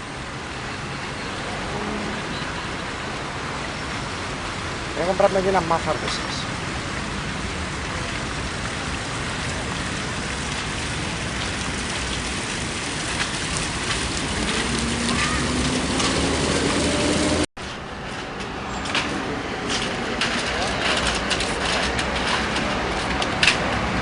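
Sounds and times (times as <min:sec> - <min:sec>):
city street hum: 0:00.0 - 0:24.0
vehicle engine passing: 0:14.1 - 0:17.5.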